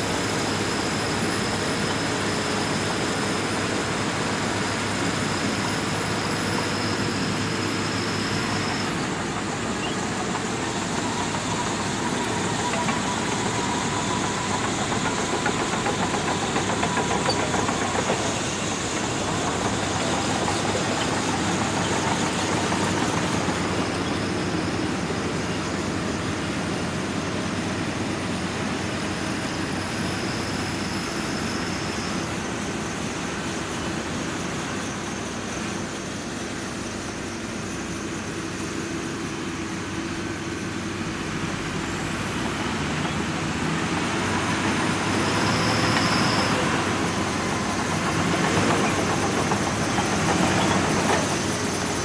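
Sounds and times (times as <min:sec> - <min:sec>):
bulldozer diesel engine under load: 0:00.0 - 0:52.0.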